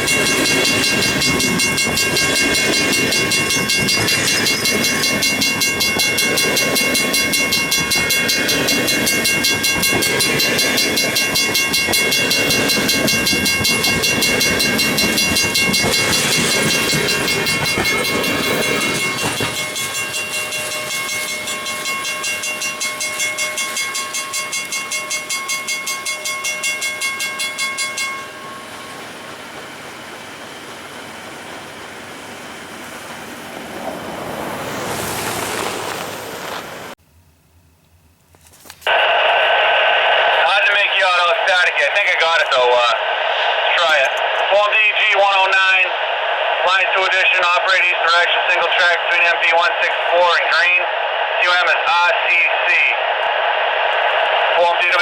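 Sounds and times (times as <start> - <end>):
crossing bell ringing: 0.0 - 30.7
freight cars rattling past: 30.7 - 37.0.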